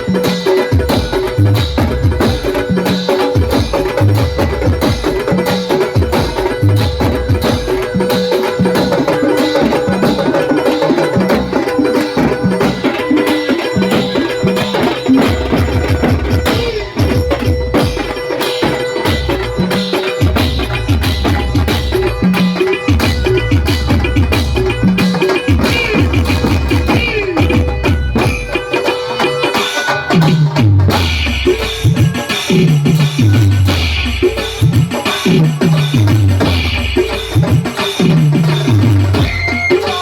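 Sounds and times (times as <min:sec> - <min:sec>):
drums beating a driving rhythm: 0:00.0 - 0:40.0
held tone: 0:06.7 - 0:29.6.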